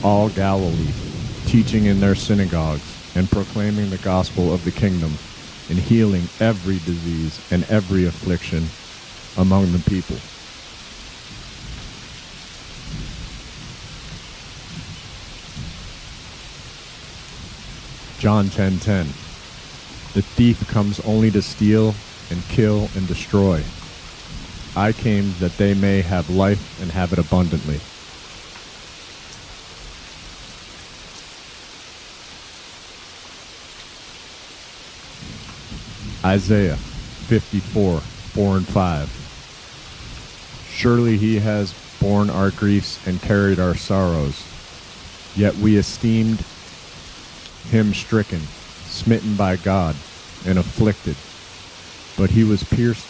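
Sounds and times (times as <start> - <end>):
low rumbles of thunder: 0.0 - 8.8, 9.7 - 28.0, 35.0 - 42.6
steady rainfall: 0.0 - 53.0.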